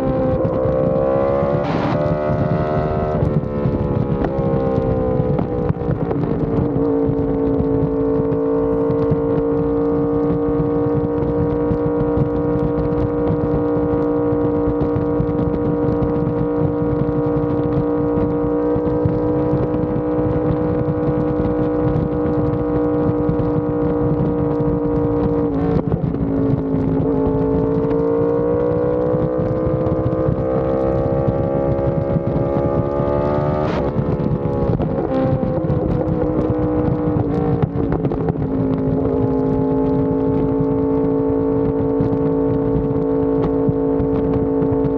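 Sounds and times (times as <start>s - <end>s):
sport bike engine revving: 0.0s - 44.9s.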